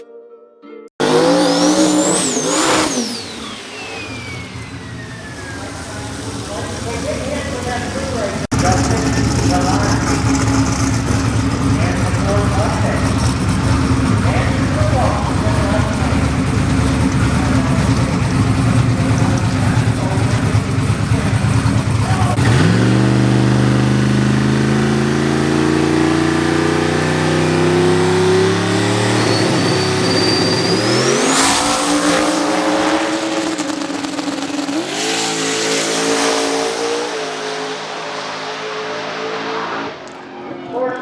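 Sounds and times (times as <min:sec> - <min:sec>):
drag car engine at high revs: 0:01.0 - 0:40.2
thin high whistle: 0:28.4 - 0:32.3.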